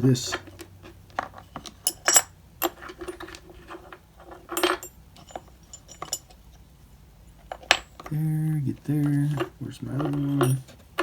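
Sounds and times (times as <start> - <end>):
metal tools clattering: 1.2 - 6.4, 9.0 - 10.8
metal tools clinking: 1.2 - 6.4, 9.0 - 10.8.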